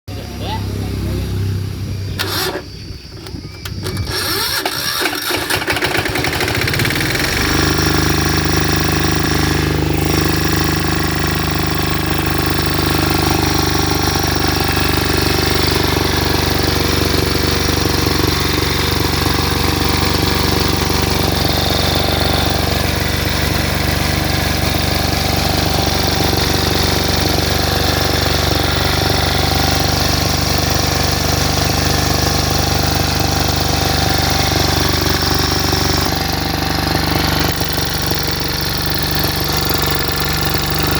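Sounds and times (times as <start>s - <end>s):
generator engine starting and running: 0.1s - 40.9s.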